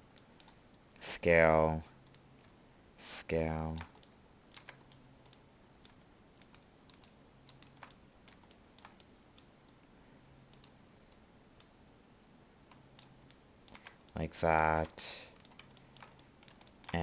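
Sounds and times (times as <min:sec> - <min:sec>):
computer keyboard clicks: 0:03.8 - 0:09.5, 0:10.5 - 0:10.8, 0:13.0 - 0:14.2, 0:14.8 - 0:17.0.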